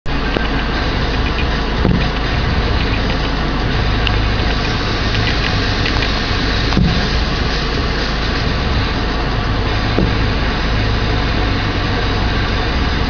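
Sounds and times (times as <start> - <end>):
car engine idling: 0.0 - 13.0
thump: 10.0 - 10.3.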